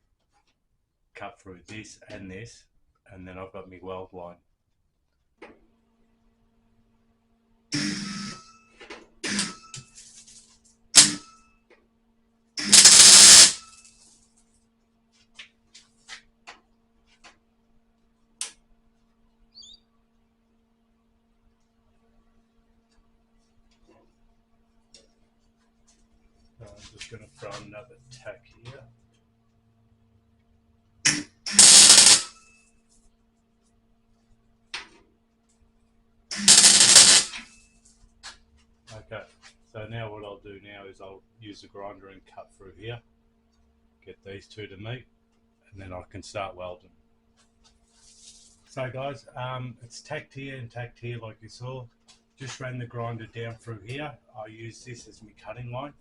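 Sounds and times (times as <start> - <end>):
welding burst: 7.8 - 8.4, 9.2 - 9.8, 11.0 - 11.4, 12.6 - 13.9, 31.1 - 32.4, 36.3 - 37.5
crackling weld tack: 9.2 - 11.4, 12.6 - 14.2, 31.1 - 32.4, 36.3 - 37.6.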